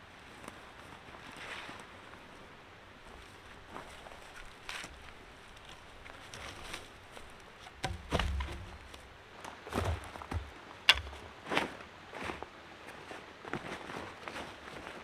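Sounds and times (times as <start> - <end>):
footsteps on forest floor: 6.3 - 11.3
heavy thuds: 7.7 - 11.3.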